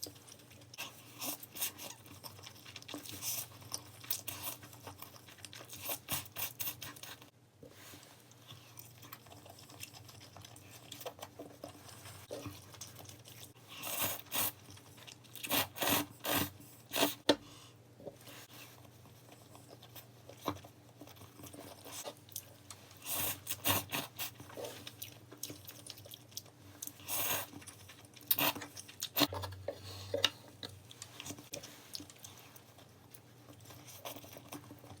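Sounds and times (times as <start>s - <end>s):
crisp crunching and chewing: 0.0s - 7.3s, 8.4s - 16.4s, 19.1s - 29.8s.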